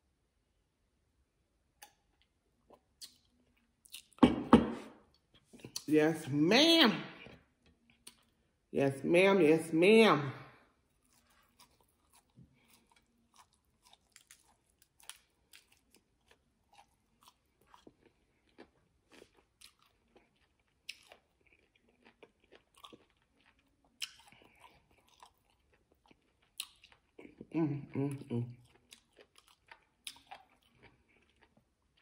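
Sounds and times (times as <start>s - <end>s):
soft chewing crunches: 1.8s - 4.2s, 7.2s - 8.6s, 10.6s - 32.0s.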